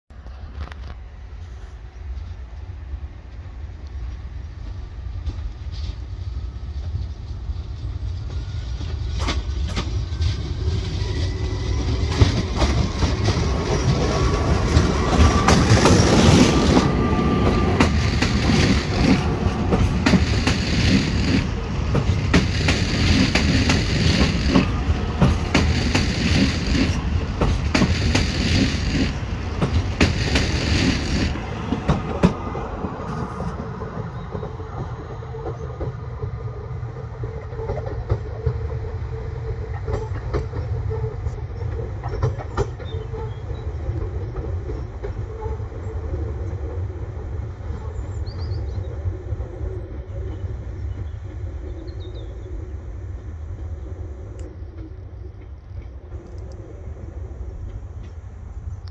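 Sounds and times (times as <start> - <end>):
electric train accelerating past: 0.2 - 58.9
wheels clattering over rail joints: 8.9 - 34.7.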